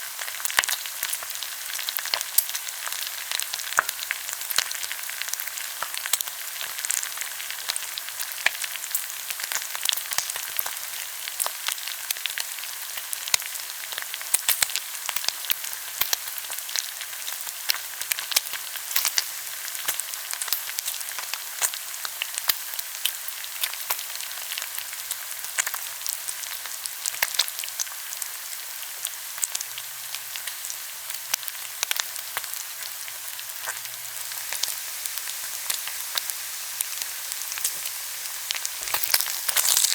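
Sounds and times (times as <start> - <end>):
meat sizzling on a grill: 0.0 - 39.9
grease crackling and popping: 35.6 - 39.9.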